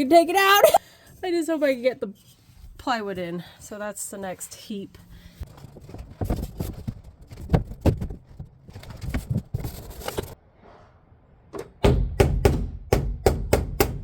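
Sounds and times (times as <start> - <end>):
hammer knocking on wood: 11.8 - 14.0.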